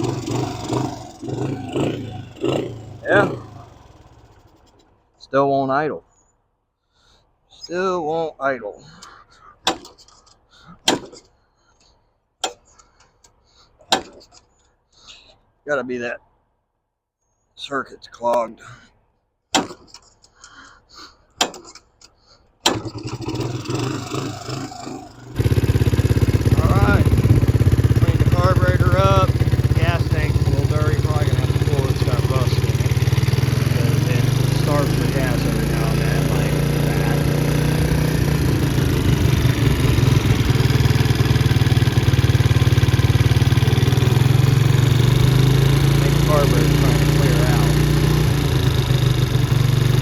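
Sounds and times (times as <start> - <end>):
small engine running unevenly: 0.0 - 4.9, 22.7 - 50.0.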